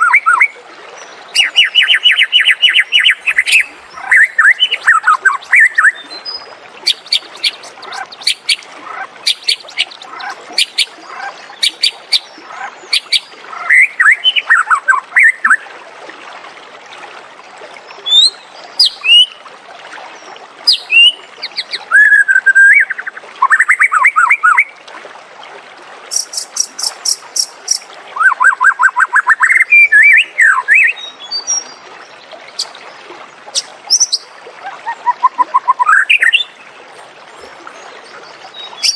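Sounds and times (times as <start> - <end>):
songbird singing whistles and trills: 0.0 - 0.6, 1.3 - 8.6, 18.0 - 19.4, 20.7 - 24.7, 26.1 - 31.8, 33.6 - 36.6, 38.6 - 38.9.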